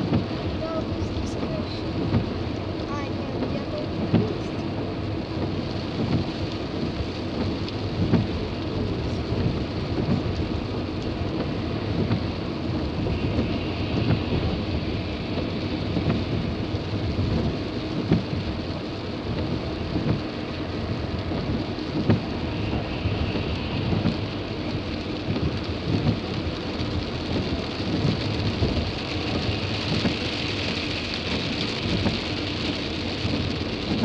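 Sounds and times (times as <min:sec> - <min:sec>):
car rumble from inside cabin: 0:00.0 - 0:34.0
rain on car: 0:00.0 - 0:34.0.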